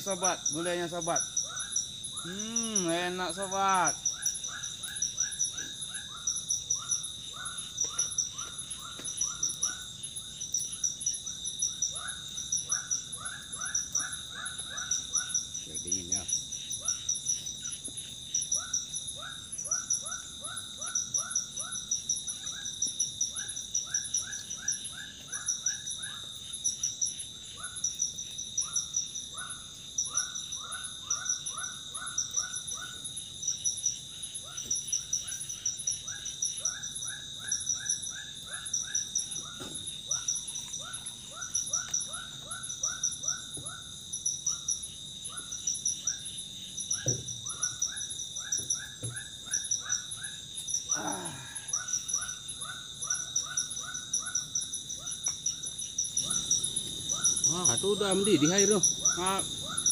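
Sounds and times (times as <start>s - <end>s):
high insect drone: 0.0s - 59.9s
pulsing insect trills: 0.0s - 59.9s.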